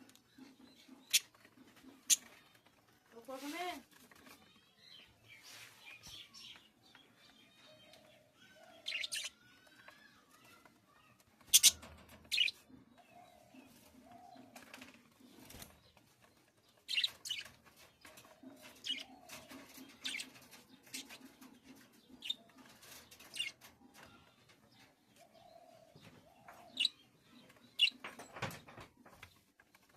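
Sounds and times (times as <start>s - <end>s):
pet bird chirping: 0.3s - 2.5s, 7.5s - 13.4s, 16.8s - 17.5s, 19.9s - 20.3s.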